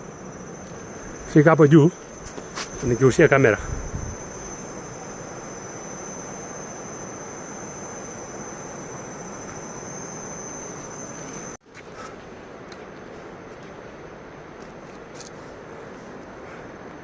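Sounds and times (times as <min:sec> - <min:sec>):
crickets trilling: 0:00.0 - 0:11.6.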